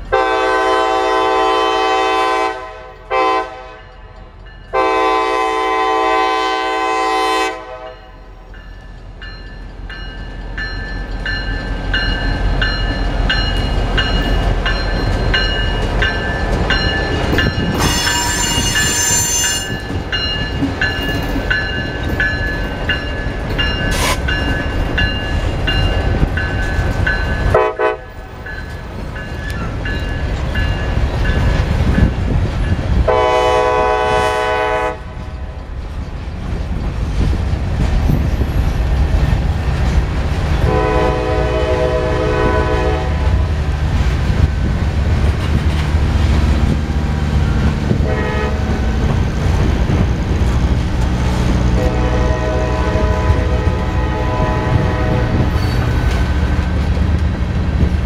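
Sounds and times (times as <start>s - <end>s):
locomotive engine rumbling: 0.0s - 58.0s
locomotive air horn: 0.1s - 4.0s, 4.7s - 8.2s, 17.8s - 19.8s, 23.9s - 24.2s, 27.5s - 28.2s, 33.1s - 35.2s, 40.6s - 43.5s, 48.0s - 48.8s, 51.7s - 55.6s
wheels squealing: 15.1s - 19.9s.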